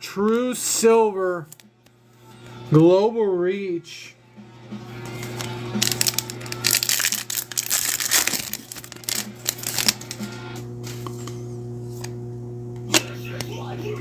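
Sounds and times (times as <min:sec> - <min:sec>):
low background hum: 0:00.0 - 0:14.0
wrapper crinkling and tearing: 0:05.4 - 0:10.2.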